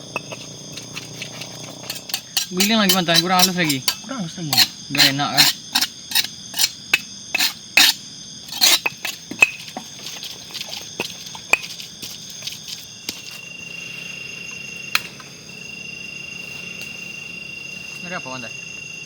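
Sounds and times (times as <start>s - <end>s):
spices pounded in a mortar: 0.0s - 13.2s
insects trilling: 0.0s - 19.0s.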